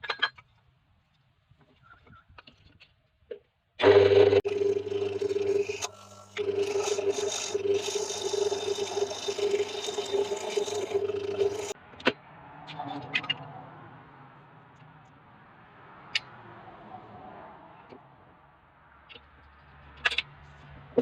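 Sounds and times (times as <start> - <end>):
power tool motor on wood: 3.8 - 11.8.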